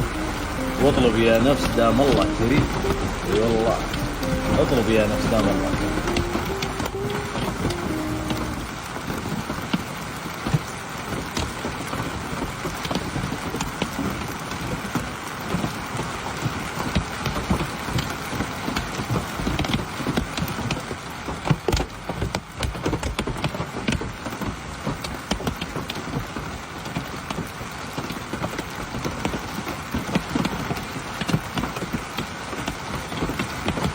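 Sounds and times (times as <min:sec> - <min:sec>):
rain rushing hiss: 0:00.0 - 0:16.6.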